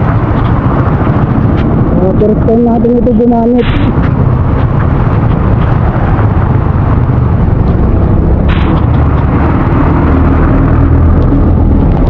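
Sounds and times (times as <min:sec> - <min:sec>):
low vehicle engine hum: 0:00.0 - 0:12.0
wind: 0:00.0 - 0:12.0.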